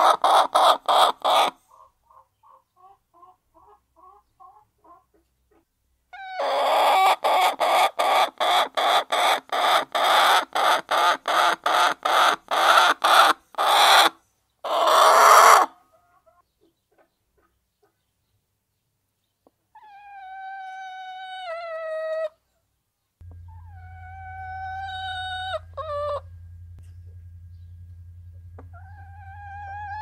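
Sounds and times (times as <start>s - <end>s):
hen clucking softly: 0.0s - 18.1s, 19.4s - 22.4s, 23.3s - 26.3s, 28.5s - 30.0s
hen cackling: 23.3s - 26.4s, 28.6s - 30.0s.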